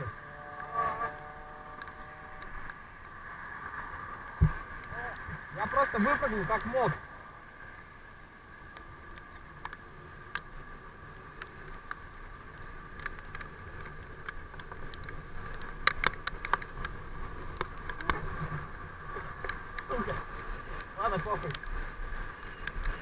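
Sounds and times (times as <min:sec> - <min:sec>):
faint bicycle hum: 0:00.0 - 0:23.0
bicycle clicks and rattles: 0:11.3 - 0:18.2.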